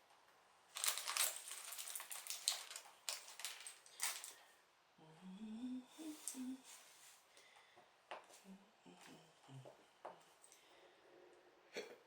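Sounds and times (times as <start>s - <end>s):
plastic bricks clicking and rattling: 0.8s - 4.4s
person humming: 5.0s - 6.8s, 8.3s - 9.8s.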